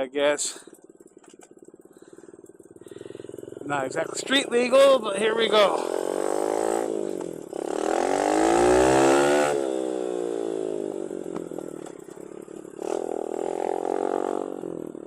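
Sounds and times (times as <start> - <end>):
dirt bike engine revving: 0.9 - 15.0.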